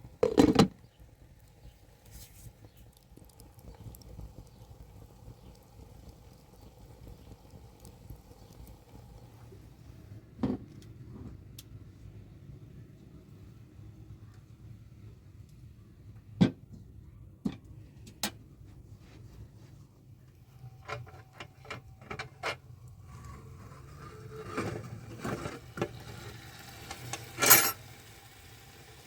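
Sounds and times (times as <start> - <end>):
hard objects knocking and clicking: 0.2 - 0.8
rustling scrapes: 2.1 - 2.5.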